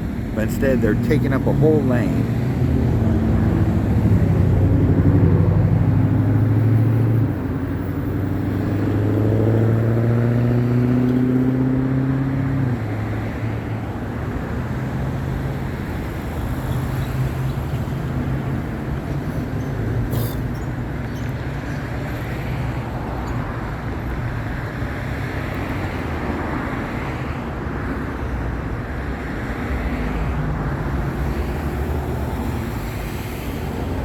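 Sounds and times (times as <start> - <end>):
traffic hum and road noise: 0.0 - 34.0
vehicle engine accelerating: 0.6 - 12.9.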